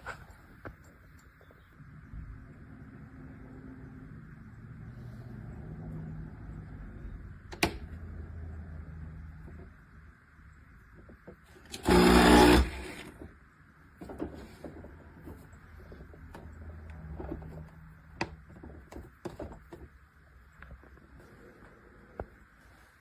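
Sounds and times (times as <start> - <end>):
loud electric buzz: 11.7 - 13.1.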